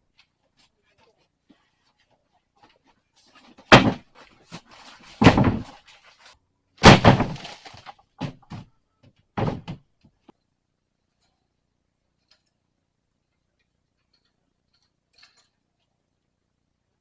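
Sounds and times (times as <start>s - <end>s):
loud bangs and thumps: 3.7s - 4.1s, 5.2s - 5.8s, 6.8s - 7.5s, 9.4s - 9.8s.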